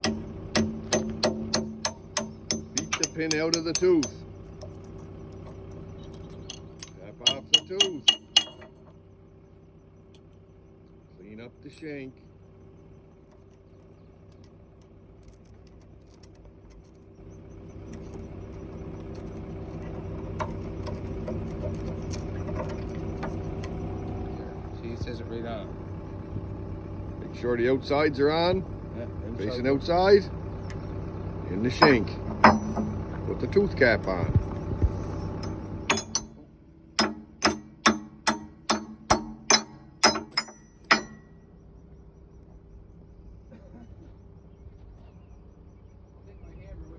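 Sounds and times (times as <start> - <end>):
hammer striking steel: 0.0 - 4.2, 6.4 - 8.8, 31.7 - 33.1, 35.4 - 41.3
metal clicks and knocks: 0.0 - 8.9, 31.7 - 33.2, 35.4 - 41.3
excavator engine idling: 0.0 - 46.9.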